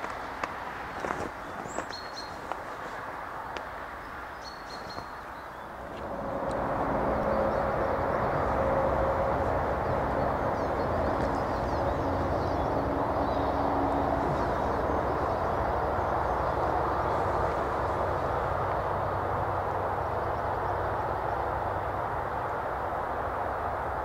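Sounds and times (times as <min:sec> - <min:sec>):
train rolling rumble: 0:00.0 - 0:24.0.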